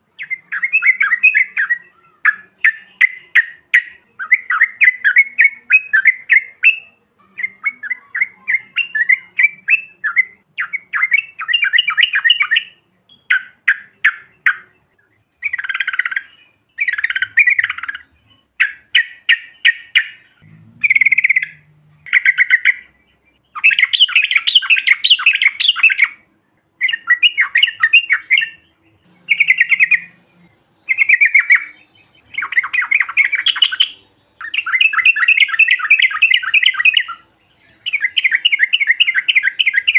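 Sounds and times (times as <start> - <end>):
birds singing chattering song: 0.0 - 39.9.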